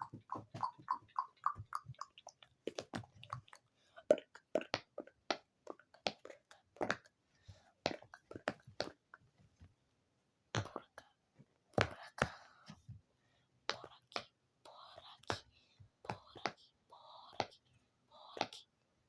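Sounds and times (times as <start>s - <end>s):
wet mouth clicks and pops: 0.0s - 6.3s.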